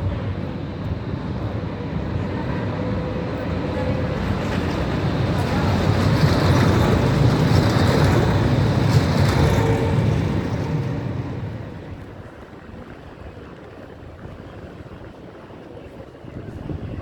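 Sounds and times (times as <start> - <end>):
tram rumbling past: 0.0 - 13.1
street background noise: 0.0 - 17.0.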